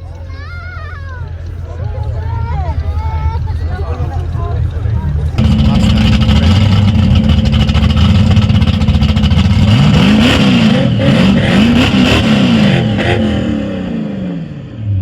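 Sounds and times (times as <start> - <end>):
car engine revving hard: 5.4 - 15.0.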